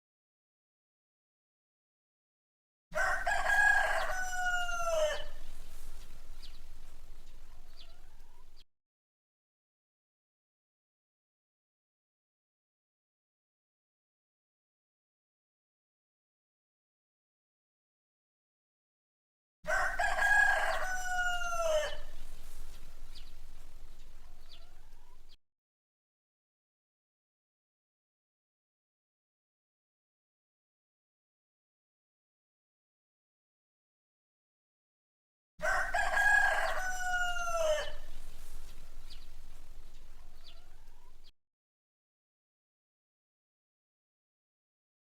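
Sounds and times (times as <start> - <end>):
rooster crowing: 3.0 - 8.6, 19.7 - 25.3, 35.6 - 41.3
soft bird chirps: 3.7 - 8.6, 20.4 - 25.4, 36.4 - 41.3.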